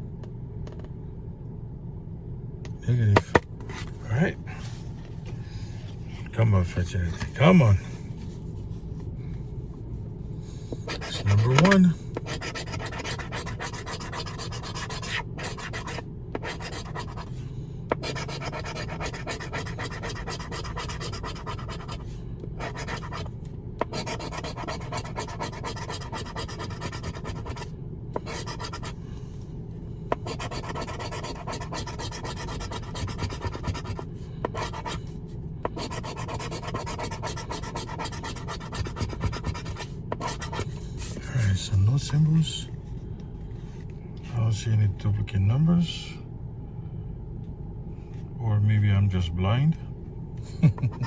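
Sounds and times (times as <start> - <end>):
scratching a scratch-off ticket: 10.9 - 29.0, 30.2 - 35.1, 35.7 - 42.6.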